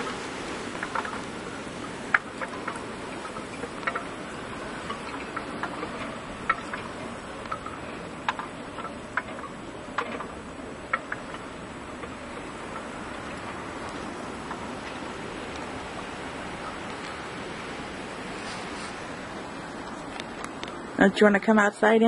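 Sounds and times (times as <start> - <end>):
blizzard wind blowing: 0.0 - 21.1.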